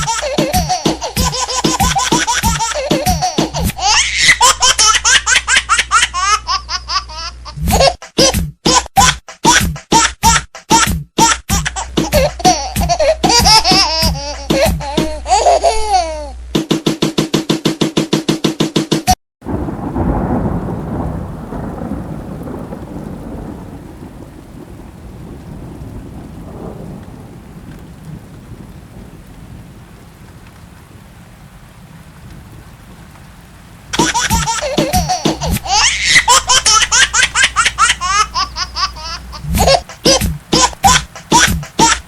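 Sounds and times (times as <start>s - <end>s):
rain: 0.0s - 9.6s, 10.2s - 16.6s, 19.4s - 42.0s
baby laughing: 0.0s - 16.4s, 34.0s - 42.0s
thunder rumbling: 19.4s - 42.0s.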